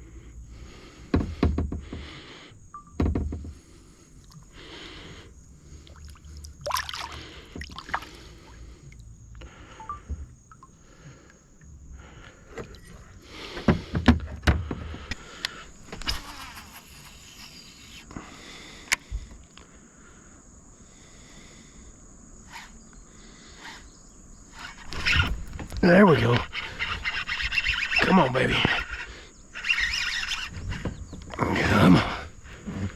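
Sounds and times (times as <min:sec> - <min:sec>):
high insect drone: 0:00.0 - 0:32.9
gear knocking against kayak: 0:01.1 - 0:02.2, 0:02.8 - 0:03.7, 0:13.5 - 0:17.0, 0:24.8 - 0:29.0, 0:29.6 - 0:32.9.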